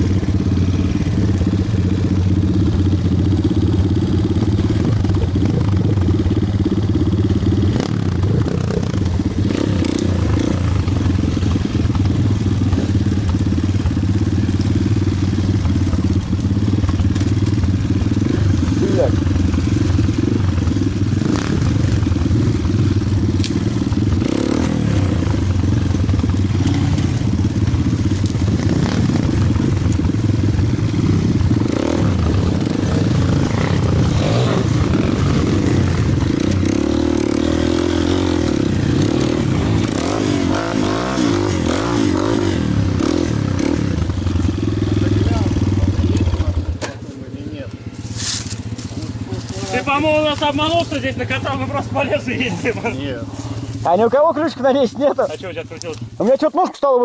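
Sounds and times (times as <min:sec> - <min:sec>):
pit bike engine revving: 0:00.0 - 0:57.0.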